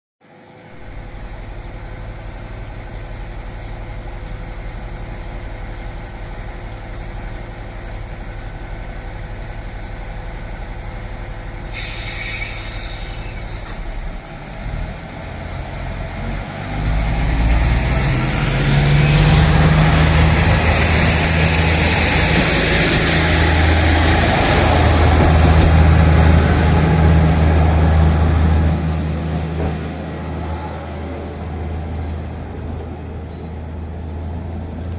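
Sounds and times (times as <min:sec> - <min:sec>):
diesel railcar engine: 0:00.2 - 0:34.9
air hiss: 0:11.7 - 0:13.7.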